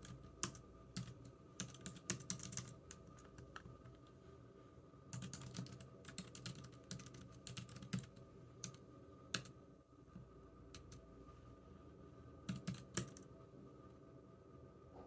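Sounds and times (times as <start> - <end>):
computer keyboard typing: 0.0 - 4.0, 5.1 - 9.6, 10.7 - 11.0, 12.5 - 13.3.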